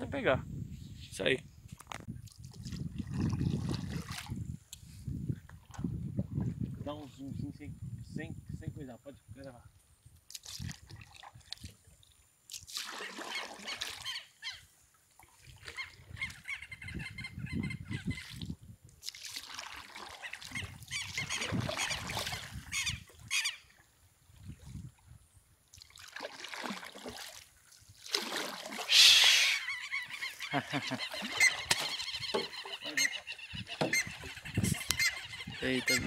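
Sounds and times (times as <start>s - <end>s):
birds honking: 28.9s - 36.0s.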